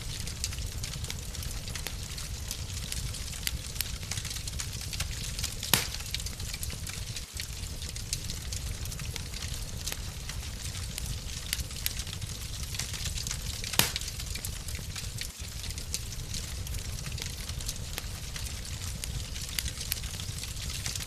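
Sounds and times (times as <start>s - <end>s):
loud fire snap: 0.0s - 21.0s
low steady rumble: 0.0s - 21.0s
wood fire crackling: 0.0s - 21.0s.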